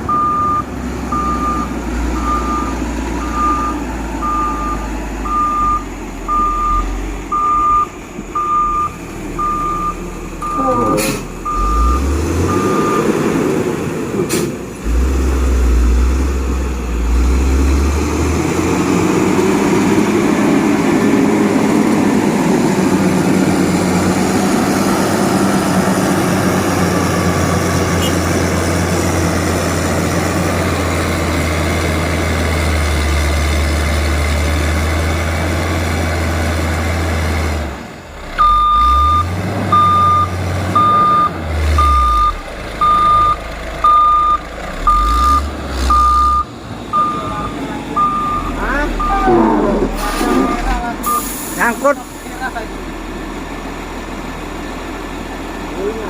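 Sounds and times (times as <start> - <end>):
heavy diesel engine droning: 0.0 - 56.0
reversing alarm beeping: 0.1 - 13.2, 38.4 - 51.9.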